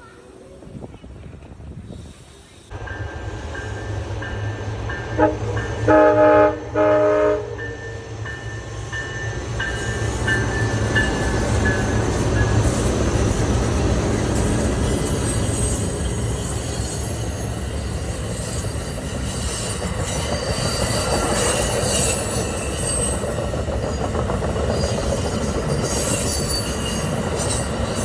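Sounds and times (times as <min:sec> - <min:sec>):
train rumbling: 0:00.0 - 0:28.0
train horn blasts: 0:05.1 - 0:08.0.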